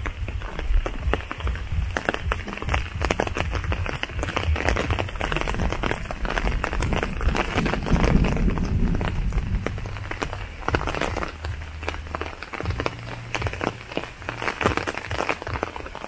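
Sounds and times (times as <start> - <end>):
footsteps on wet path: 0.0 - 16.0
raindrops ticking: 0.0 - 16.0.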